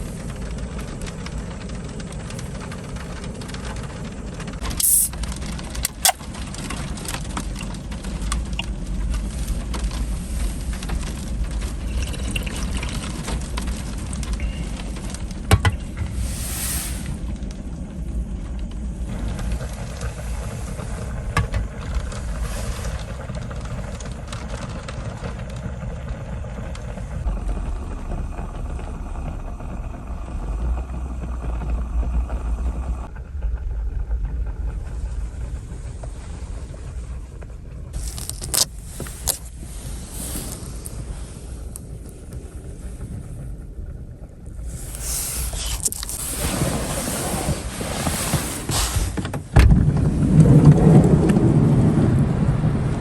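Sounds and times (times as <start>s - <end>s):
sharp clicks: 4.6s - 6.5s
strong wind gusting: 13.0s - 53.0s.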